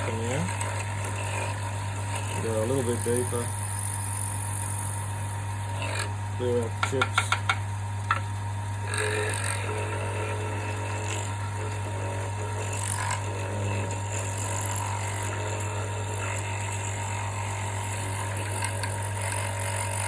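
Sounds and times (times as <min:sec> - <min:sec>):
wood lathe humming: 0:00.0 - 0:20.0.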